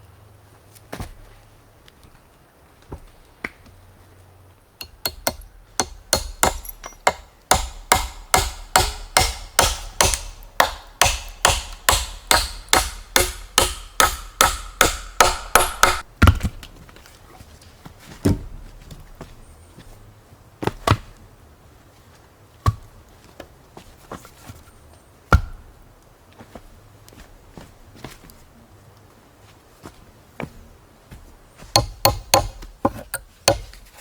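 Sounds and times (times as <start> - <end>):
tool striking repeatedly: 4.8 - 16.1, 31.7 - 33.8.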